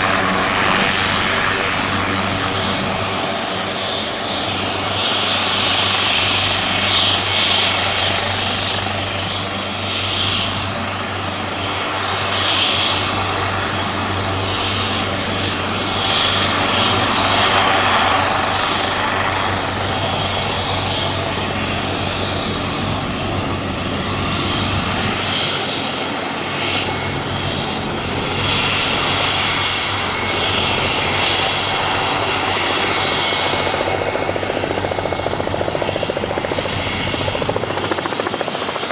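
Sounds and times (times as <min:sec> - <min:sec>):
helicopter rotor hum: 0:00.0 - 0:38.9
high turbine whine: 0:00.0 - 0:38.9.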